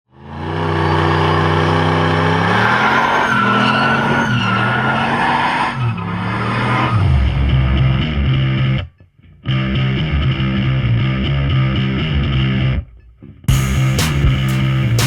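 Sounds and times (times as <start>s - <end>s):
engine at high revs: 0.1s - 8.8s
tyres squealing: 0.7s - 7.0s.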